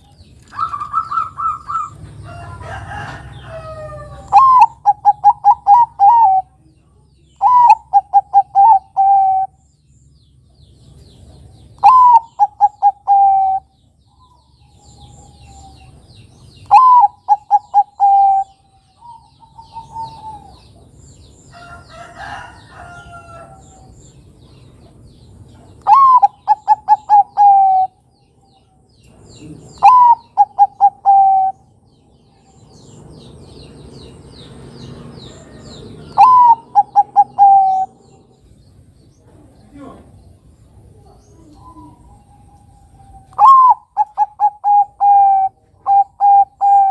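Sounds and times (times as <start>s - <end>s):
dove cooing: 0.5s - 6.6s, 7.4s - 9.6s, 11.8s - 16.0s, 16.6s - 20.8s, 25.8s - 28.0s, 29.4s - 31.7s, 35.5s - 38.3s, 40.9s - 46.9s
rough bird call: 25.8s - 28.0s, 34.4s - 38.5s, 41.6s - 46.9s
faint small-bird chirps: 41.0s - 43.5s.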